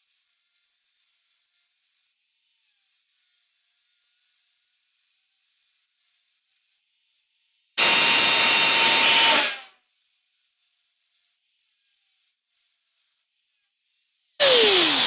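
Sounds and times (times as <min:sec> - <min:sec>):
angle grinder grinding metal: 0:14.4 - 0:15.0.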